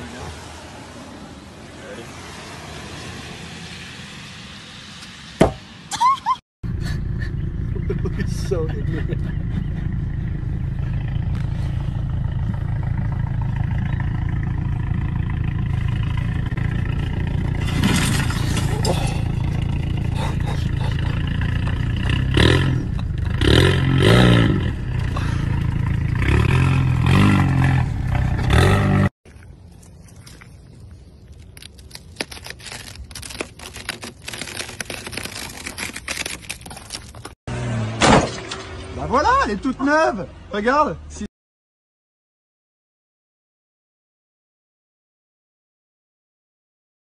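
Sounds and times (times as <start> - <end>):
car engine and exhaust rumbling: 6.6 - 29.5.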